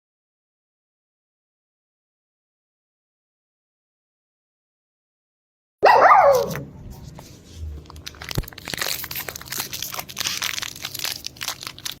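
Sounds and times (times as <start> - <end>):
scratchy crinkling rustle: 6.3 - 12.0.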